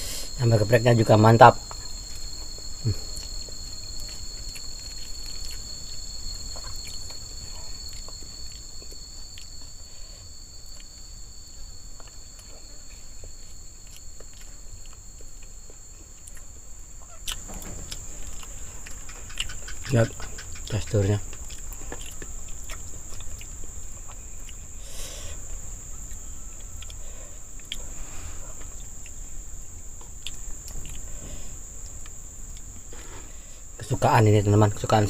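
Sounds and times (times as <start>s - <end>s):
insects droning: 0.0s - 35.0s
person eating: 17.2s - 19.9s.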